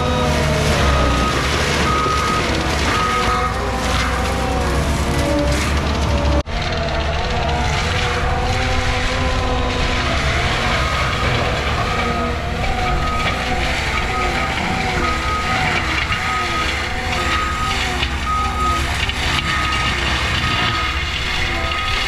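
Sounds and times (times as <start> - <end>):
backup alarm beeping: 0.0 - 3.6, 10.8 - 22.0
heavy equipment engine rumbling: 0.0 - 22.0.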